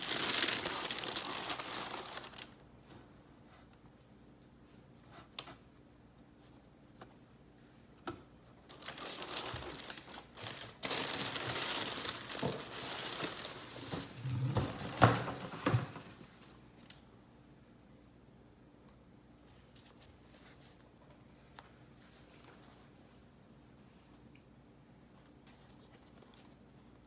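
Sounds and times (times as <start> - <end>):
packaging crinkling and rustling: 0.0 - 2.6, 8.7 - 17.0.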